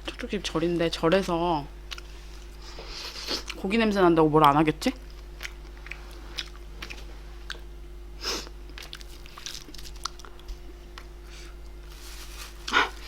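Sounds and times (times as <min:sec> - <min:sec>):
faint steady hum: 0:00.0 - 0:13.0
chewing with mouth clicks: 0:01.9 - 0:02.5, 0:04.4 - 0:07.7, 0:08.7 - 0:11.1.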